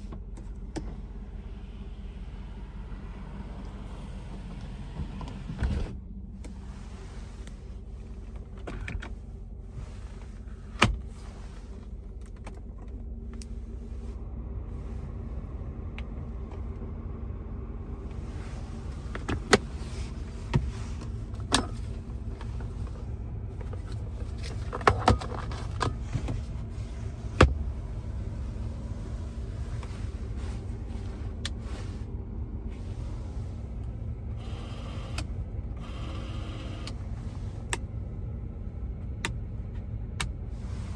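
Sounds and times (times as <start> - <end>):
car engine idling: 0.0 - 40.9
electric accessory motor running: 34.4 - 37.0.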